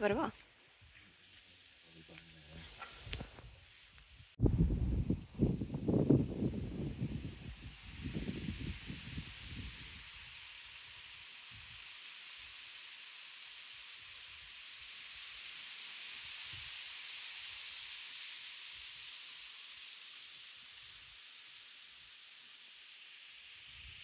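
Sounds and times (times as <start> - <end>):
steady wind hiss: 0.0 - 24.0
wind buffeting microphone: 4.4 - 10.2.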